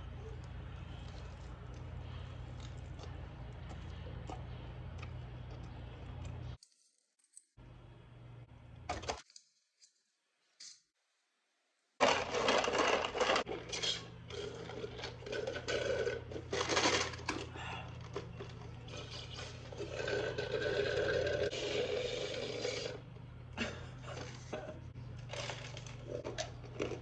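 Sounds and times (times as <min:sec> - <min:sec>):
low background hum: 0:00.0 - 0:06.6, 0:07.3 - 0:09.2, 0:11.4 - 0:27.0
person chewing food: 0:00.4 - 0:06.6.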